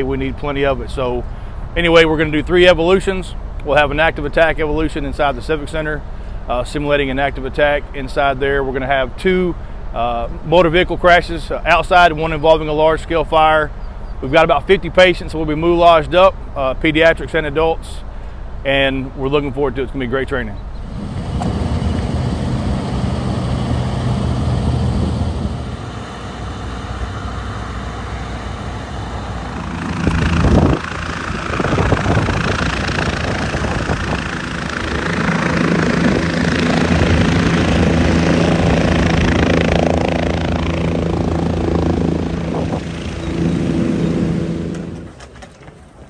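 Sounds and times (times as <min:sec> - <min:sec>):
rushing noise: 0:20.9 - 0:45.2
large engine running: 0:20.9 - 0:45.3
sharp burst: 0:21.0 - 0:45.2.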